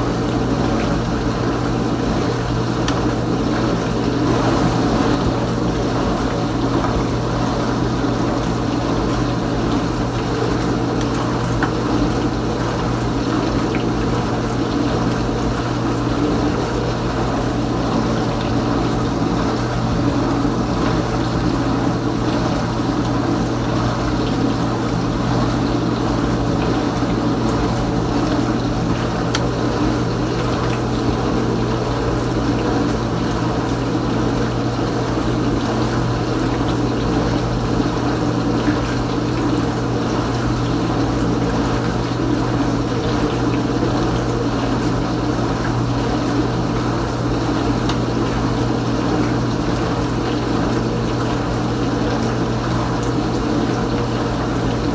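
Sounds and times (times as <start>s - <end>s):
dishwasher pump humming: 0.0s - 54.9s
water spraying and sloshing: 0.0s - 54.9s.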